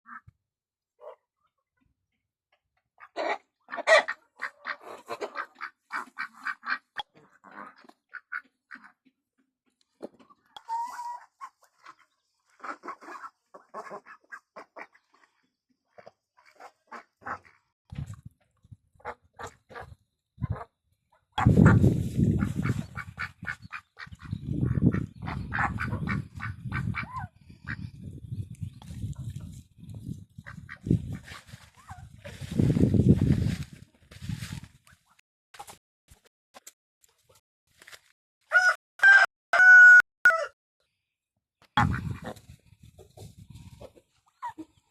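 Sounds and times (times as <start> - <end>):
ducks quacking: 3.0 - 9.1, 10.8 - 15.3, 16.4 - 17.6, 21.4 - 28.0, 30.4 - 32.1, 41.8 - 42.4.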